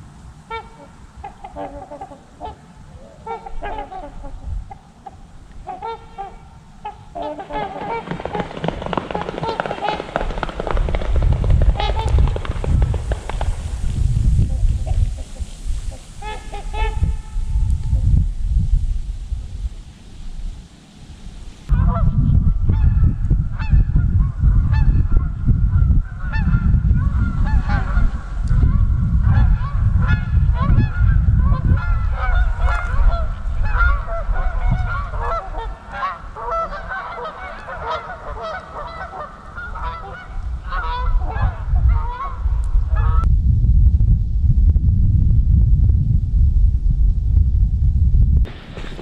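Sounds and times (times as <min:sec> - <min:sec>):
flock of waterfowl honking: 0:00.5 - 0:10.8, 0:11.8 - 0:12.4, 0:14.5 - 0:18.0, 0:21.7 - 0:43.3
heavy low rumble: 0:10.8 - 0:20.4, 0:21.6 - 0:35.3, 0:40.4 - 0:49.0.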